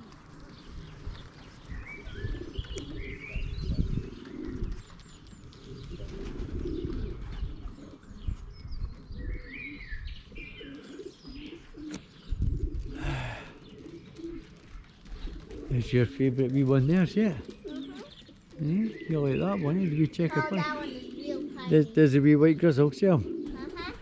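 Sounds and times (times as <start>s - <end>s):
pigeons cooing: 0.0s - 24.0s.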